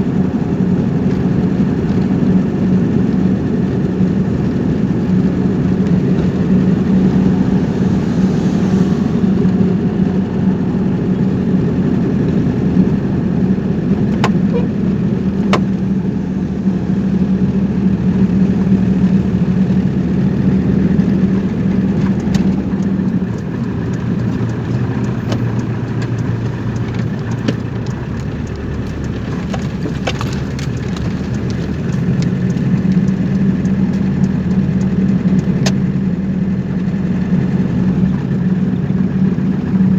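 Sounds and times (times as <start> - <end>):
car engine and road noise: 0.0 - 39.9
sharp clicks: 21.9 - 35.8.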